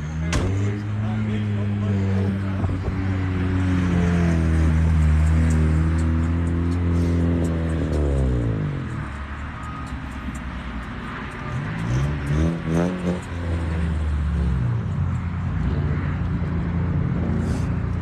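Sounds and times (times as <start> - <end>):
car engine revving and idling: 0.0 - 18.0.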